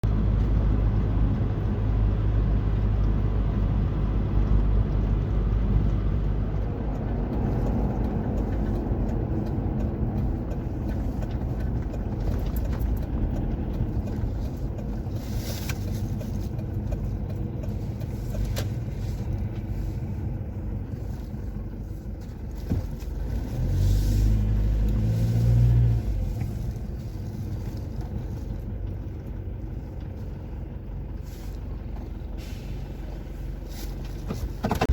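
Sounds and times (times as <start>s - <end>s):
road noise: 0.0s - 34.9s
vehicle engine rumble: 0.0s - 34.9s.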